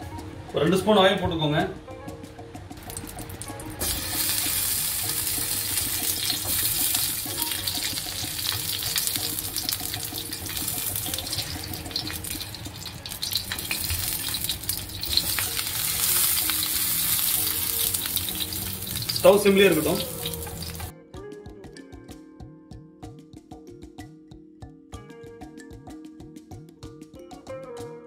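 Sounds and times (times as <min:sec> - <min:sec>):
chillies sizzling in hot oil: 0:02.9 - 0:20.9.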